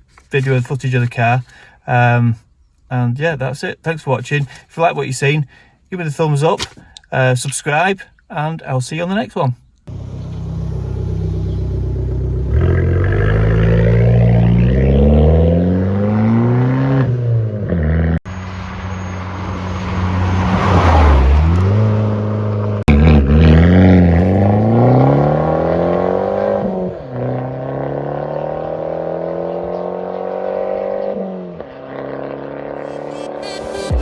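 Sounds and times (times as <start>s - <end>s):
car engine accelerating hard: 9.9s - 34.0s.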